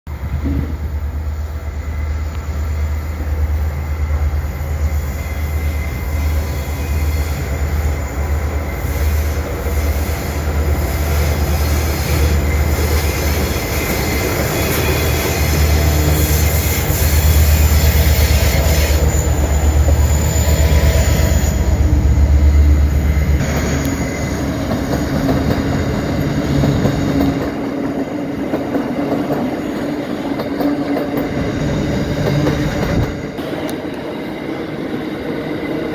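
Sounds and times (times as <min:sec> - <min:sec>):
locomotive engine drone: 0:00.2 - 0:27.2
high-pitched wheel squeal: 0:04.5 - 0:21.9.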